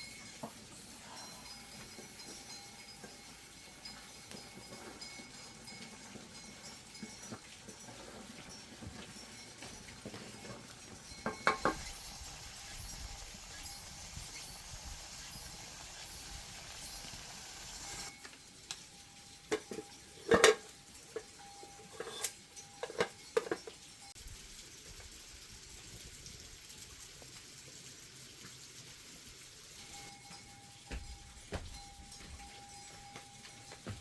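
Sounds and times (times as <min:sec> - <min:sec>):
hard objects knocking and clinking: 0:11.0 - 0:12.0, 0:22.8 - 0:23.8.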